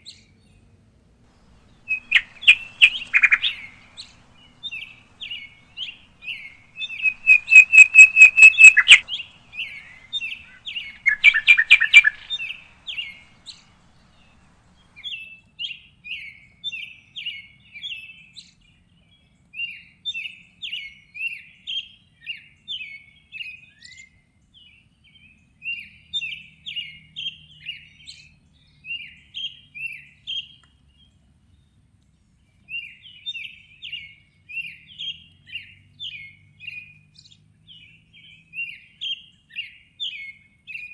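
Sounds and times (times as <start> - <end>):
songbirds chirping: 0.0 - 40.9
loud fast bird trills: 1.4 - 15.2.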